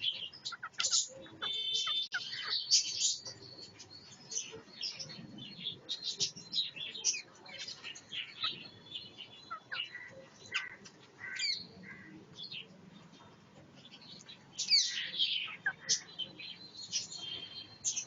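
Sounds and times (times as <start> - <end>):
parrots chirping and squawking: 0.0 - 3.4, 7.0 - 12.2, 14.5 - 16.2.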